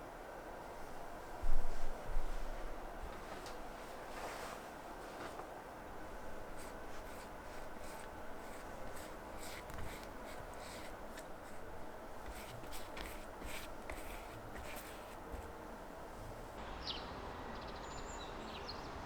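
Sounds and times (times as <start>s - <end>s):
low steady hum: 0.0s - 19.0s
soft scratching strokes: 1.6s - 16.6s.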